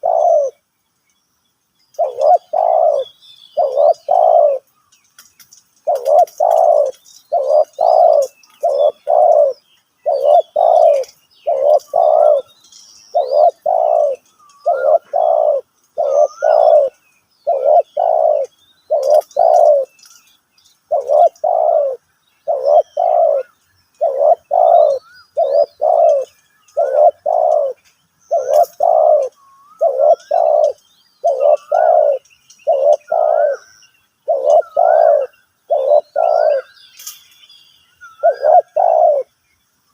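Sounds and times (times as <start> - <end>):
dove cooing: 0.0 - 0.6, 2.0 - 4.7, 5.8 - 12.5, 13.1 - 20.0, 20.9 - 37.1, 38.2 - 39.3
small birds chirping: 0.0 - 39.9.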